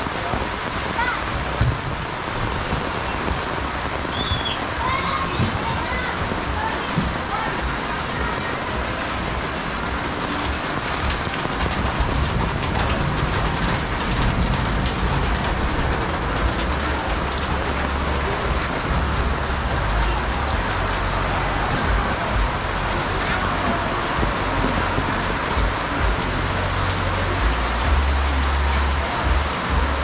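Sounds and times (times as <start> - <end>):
heavy rain falling: 0.0 - 30.0
low rumble: 9.0 - 30.0.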